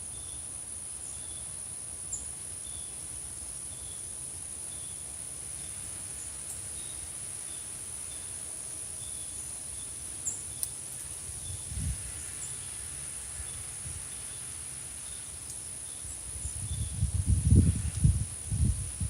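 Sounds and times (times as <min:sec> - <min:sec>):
insects chirping: 0:00.0 - 0:19.0
faint clicks: 0:10.6 - 0:11.1.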